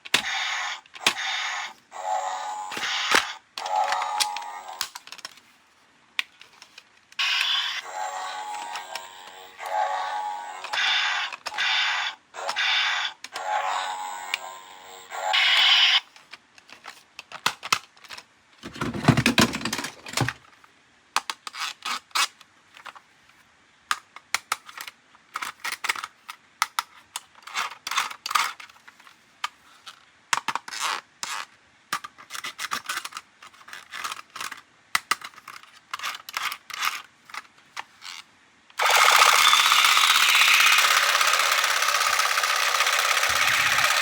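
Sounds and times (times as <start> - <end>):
plastic parts clicking and scraping: 0.0 - 5.6, 6.2 - 14.4, 15.3 - 44.0
loud steady rattling: 38.8 - 44.0.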